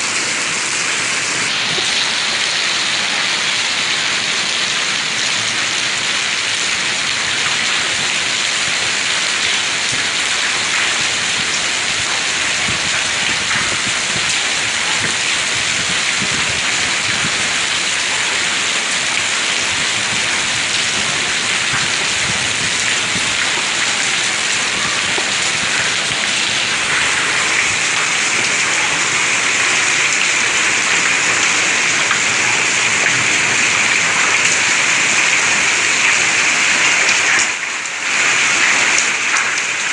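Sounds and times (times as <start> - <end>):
hail and heavy rain pelting: 0.0 - 39.9.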